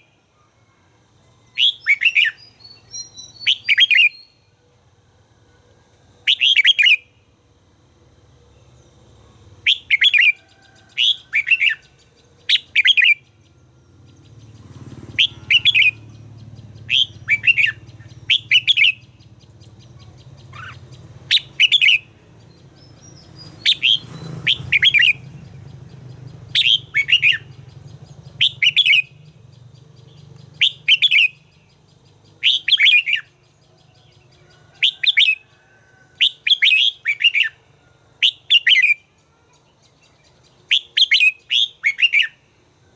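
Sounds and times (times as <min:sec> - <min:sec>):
faint low hum: 0:00.0 - 0:15.2
bulbul singing whistled phrases: 0:01.3 - 0:04.6, 0:06.2 - 0:07.3, 0:08.6 - 0:42.6.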